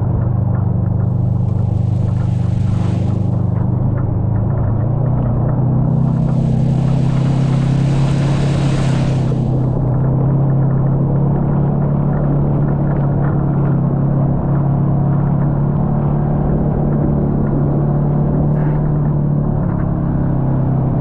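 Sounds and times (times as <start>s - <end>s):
engine droning steadily: 0.0s - 21.0s.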